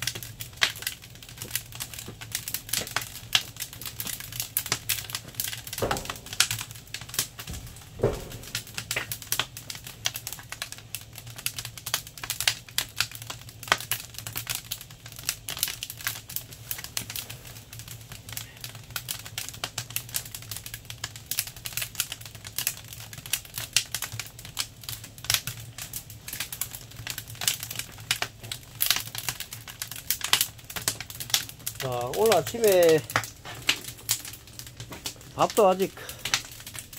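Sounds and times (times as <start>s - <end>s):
firewood crackling: 0.0s - 36.9s.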